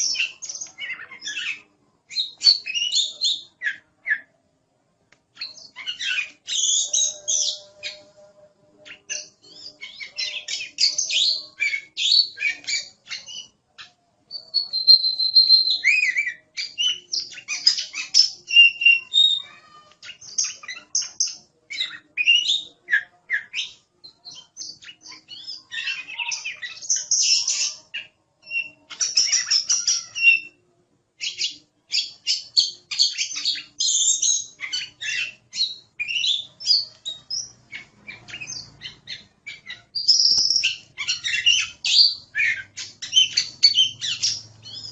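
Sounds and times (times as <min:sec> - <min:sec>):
bird singing chirps and whistles: 0:00.0 - 0:04.3, 0:05.4 - 0:30.6, 0:31.2 - 0:44.9.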